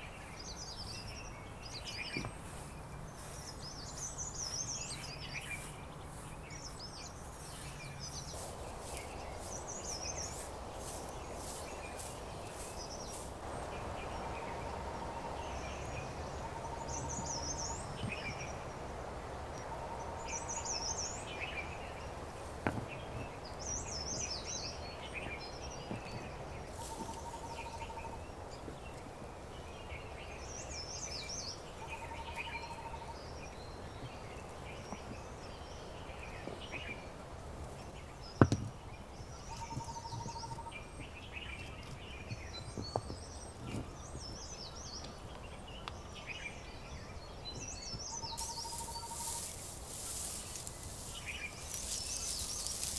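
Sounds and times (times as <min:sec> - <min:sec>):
birds singing and chirping: 0:00.0 - 0:14.4, 0:38.1 - 0:52.9
low outdoor background: 0:00.0 - 0:52.9.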